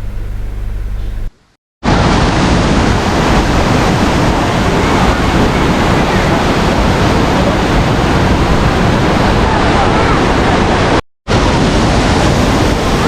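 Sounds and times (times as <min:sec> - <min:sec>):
waterfall rushing: 0:01.8 - 0:13.0.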